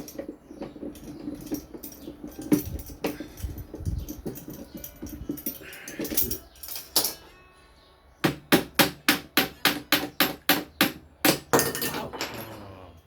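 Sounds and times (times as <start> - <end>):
parts clattering: 0.0 - 7.4, 11.3 - 12.8.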